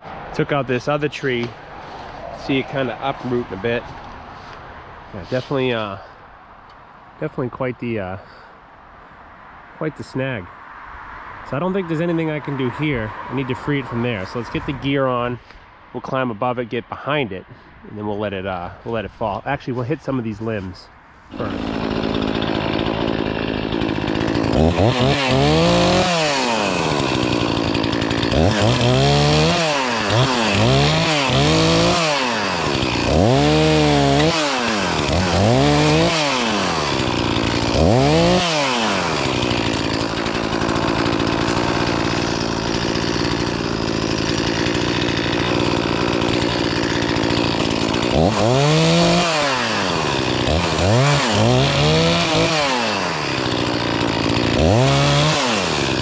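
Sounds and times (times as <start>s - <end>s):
chainsaw engine revving: 21.3s - 56.0s.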